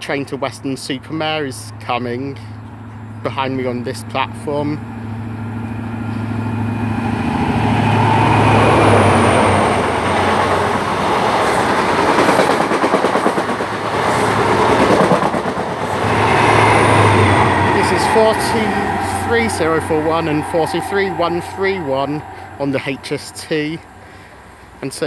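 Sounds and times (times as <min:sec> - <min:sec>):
low engine hum: 0:00.0 - 0:25.0
rapid wheel clatter: 0:04.8 - 0:19.0
train wheels rushing on rail: 0:05.0 - 0:25.0.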